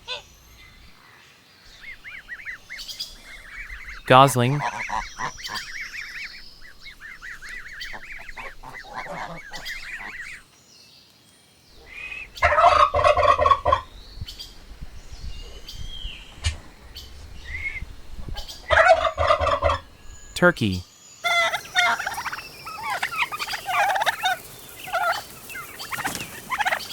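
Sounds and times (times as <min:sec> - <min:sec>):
goslings peeping: 0:01.7 - 0:10.5, 0:11.8 - 0:20.6, 0:21.2 - 0:26.9
turkey gobbling: 0:04.6 - 0:10.4, 0:11.9 - 0:13.9, 0:18.4 - 0:19.9, 0:21.2 - 0:26.9.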